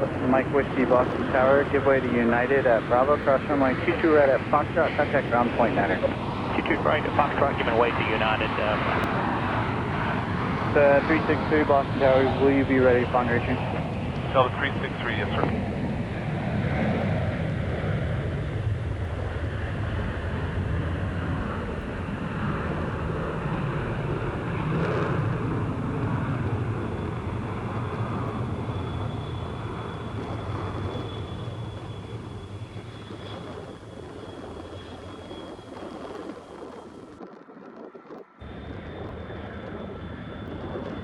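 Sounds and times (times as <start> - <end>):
jet airliner engines rumbling: 0.0 - 41.0
thin high whine: 26.8 - 41.0.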